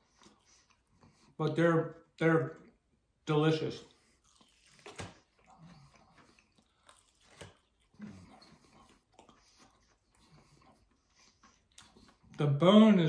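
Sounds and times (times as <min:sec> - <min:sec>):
chewing and biting chicken wing: 0:03.9 - 0:12.4.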